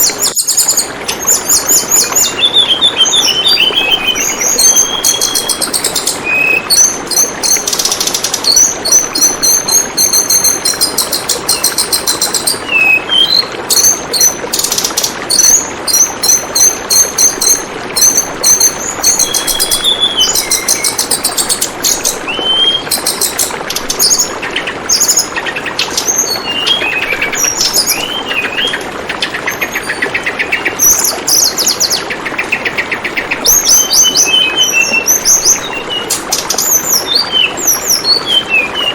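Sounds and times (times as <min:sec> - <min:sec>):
bird chirping and trilling: 0:00.0 - 0:38.9
trickling water: 0:00.0 - 0:38.9.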